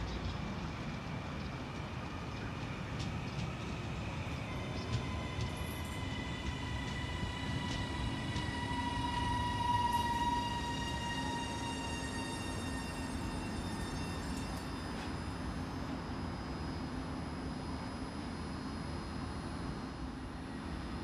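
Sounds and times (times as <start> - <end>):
train rumble: 0.0 - 16.2
train whine falling in pitch: 4.5 - 17.0.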